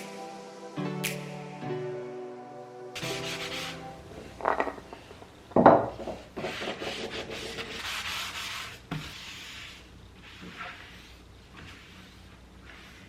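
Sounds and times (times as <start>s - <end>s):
scraping handling sounds: 4.1s - 7.2s.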